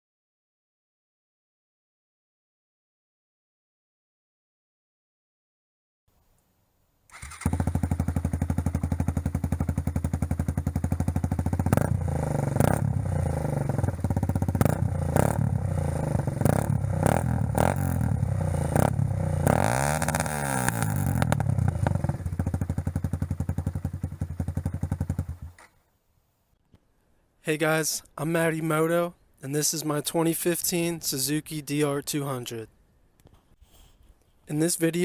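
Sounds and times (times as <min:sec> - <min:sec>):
motorcycle engine idling and revving: 0:07.1 - 0:25.8.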